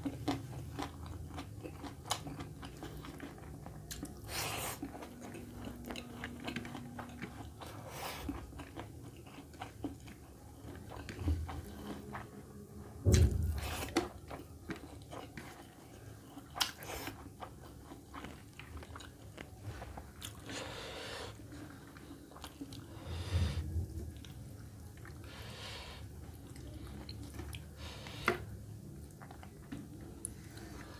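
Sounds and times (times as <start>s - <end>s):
person chewing crunchy food: 0.0s - 30.9s
heavy low thump: 13.0s - 13.7s.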